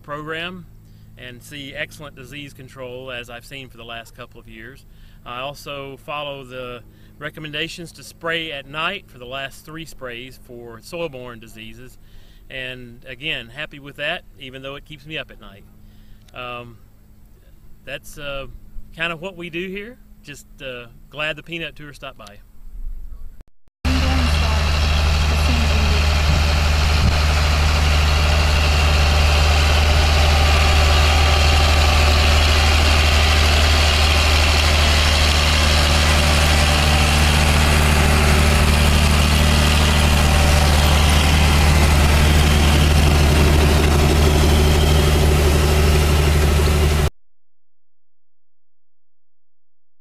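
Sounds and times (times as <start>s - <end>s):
tractor engine running: 23.9s - 47.1s.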